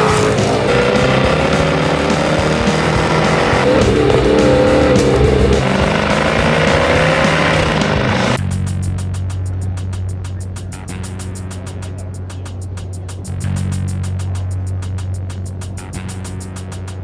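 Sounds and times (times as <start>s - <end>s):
background music: 0.0s - 8.4s
car engine accelerating hard: 0.0s - 8.4s.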